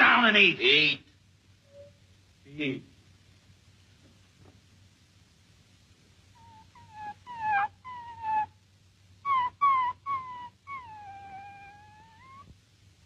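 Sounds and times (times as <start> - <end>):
animal high-pitched cries: 6.4 - 8.6, 9.2 - 12.5.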